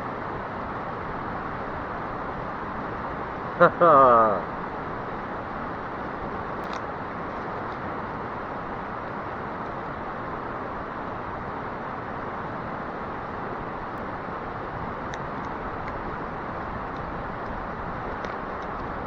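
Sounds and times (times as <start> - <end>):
mountain stream rushing: 0.0 - 19.0
faint small clicks: 6.6 - 7.8, 16.9 - 19.0.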